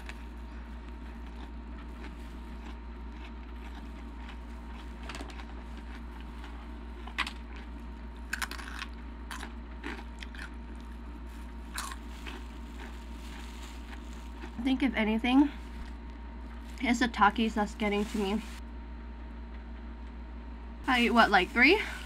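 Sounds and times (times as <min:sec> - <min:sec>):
chewing and crunching chips: 0:00.0 - 0:15.0
steady low hum: 0:00.0 - 0:22.0.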